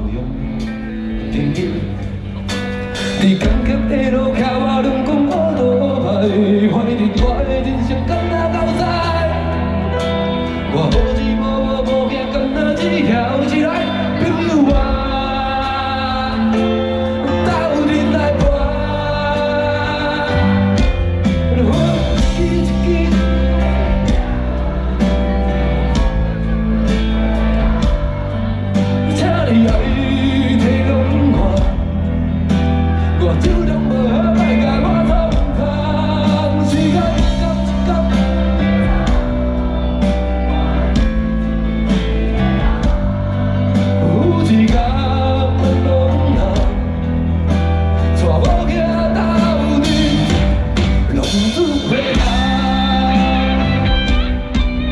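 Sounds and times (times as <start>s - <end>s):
heavy bass line: 0.0s - 54.9s
person singing: 0.0s - 54.9s
slow rock band over pa: 0.0s - 54.9s
drum beat: 20.7s - 54.9s.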